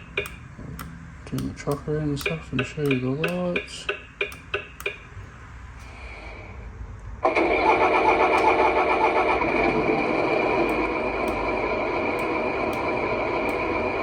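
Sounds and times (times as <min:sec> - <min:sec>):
sharp clicks: 0:00.0 - 0:05.2, 0:08.3 - 0:08.7, 0:10.6 - 0:13.8.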